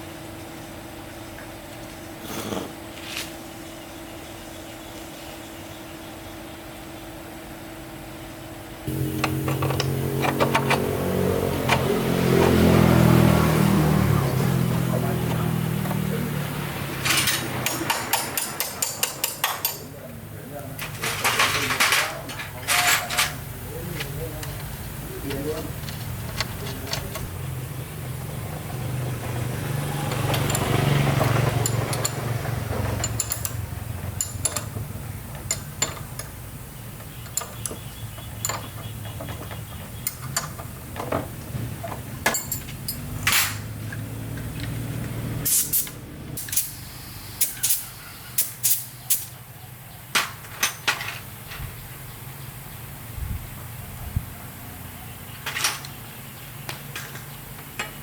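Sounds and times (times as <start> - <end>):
low mechanical hum: 0.0 - 17.3.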